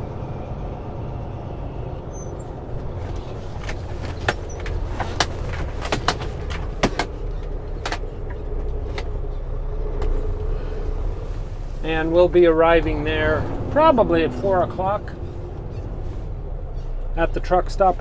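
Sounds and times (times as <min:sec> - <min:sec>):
diesel engine rumbling: 0:00.0 - 0:18.0.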